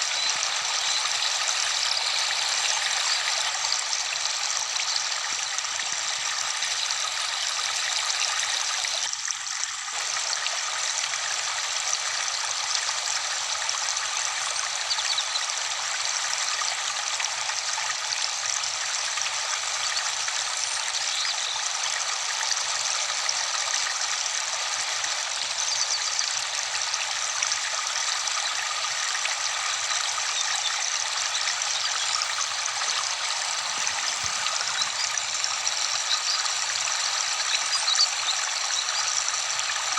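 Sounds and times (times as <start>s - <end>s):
waterfall rushing: 32.1s - 35.1s.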